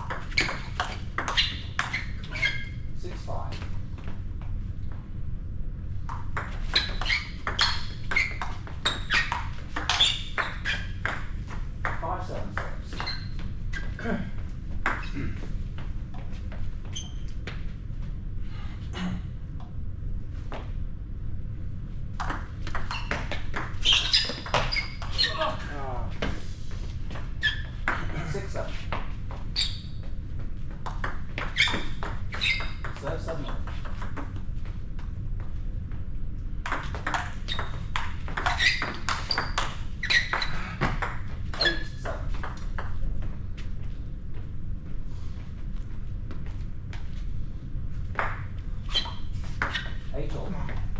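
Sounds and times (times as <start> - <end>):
squash racket and ball hits: 0.0 - 2.4, 6.0 - 13.2, 22.1 - 25.6, 30.7 - 34.5, 36.6 - 43.0
high squeaks: 0.0 - 2.8, 6.7 - 11.0, 12.9 - 14.0, 22.8 - 25.6, 29.6 - 30.0, 31.4 - 33.0, 37.1 - 40.6, 48.9 - 50.0
court shoes squeaking: 0.0 - 4.1, 6.0 - 17.7, 22.2 - 35.5, 36.6 - 43.7, 48.1 - 50.9.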